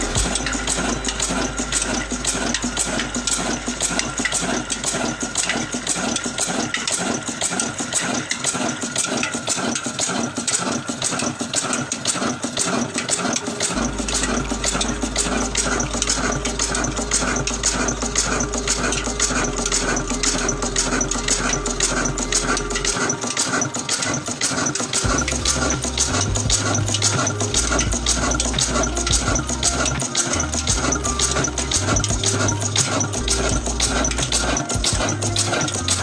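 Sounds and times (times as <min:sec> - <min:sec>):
diesel engine clattering: 0:12.6 - 0:36.0.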